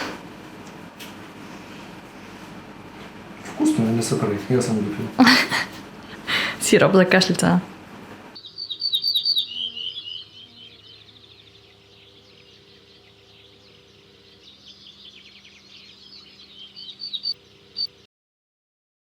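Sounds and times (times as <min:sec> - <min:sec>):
faint steady hum: 0:00.0 - 0:18.0
small birds chirping: 0:08.4 - 0:18.0.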